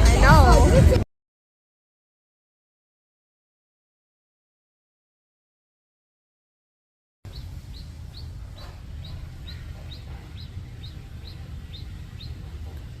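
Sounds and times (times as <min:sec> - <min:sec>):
steady low rumble: 0:07.3 - 0:13.0.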